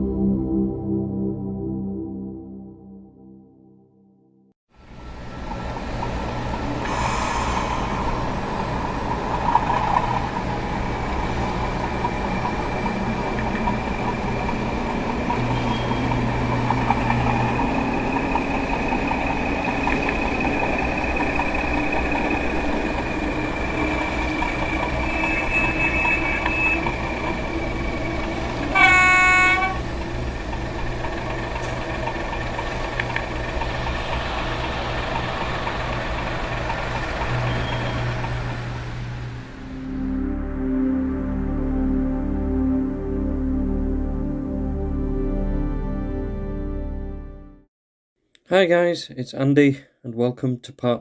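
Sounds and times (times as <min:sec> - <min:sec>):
diesel locomotive engine running: 0:04.8 - 0:42.6
train horn blast: 0:10.9 - 0:32.7.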